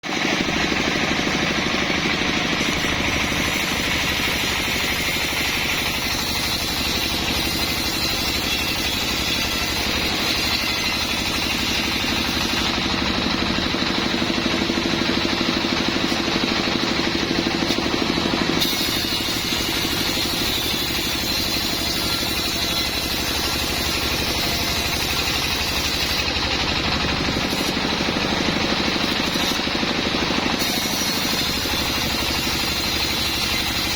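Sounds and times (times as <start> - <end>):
sawmill machinery humming: 0.0 - 33.9.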